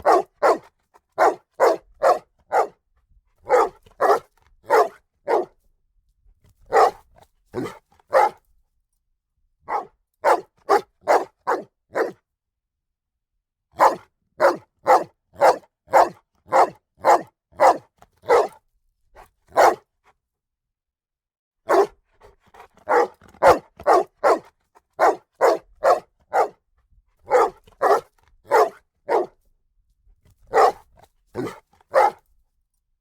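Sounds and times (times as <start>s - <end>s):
dog barking: 0.0s - 2.8s, 3.4s - 5.6s, 6.7s - 8.4s, 9.7s - 12.2s, 13.8s - 18.6s, 19.2s - 19.9s, 21.7s - 26.6s, 27.3s - 29.4s, 30.5s - 32.2s.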